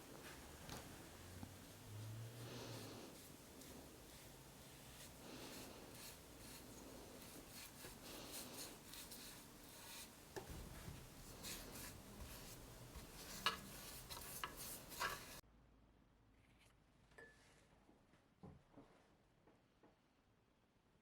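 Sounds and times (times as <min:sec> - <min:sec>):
hand rubbing on wooden frame: 0:00.0 - 0:15.4
sharp scrapes and clicks: 0:02.5 - 0:15.4.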